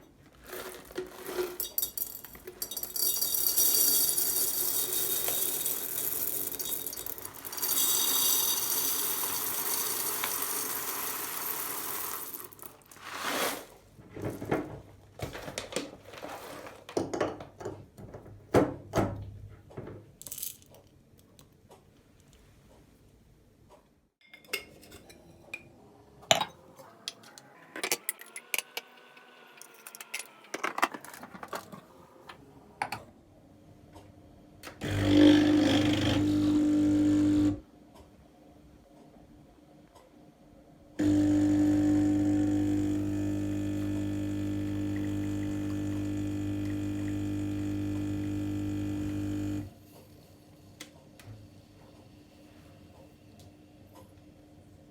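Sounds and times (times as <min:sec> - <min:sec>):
dishes and utensils clinking: 0:01.0 - 0:09.4, 0:24.2 - 0:25.7, 0:26.3 - 0:26.6.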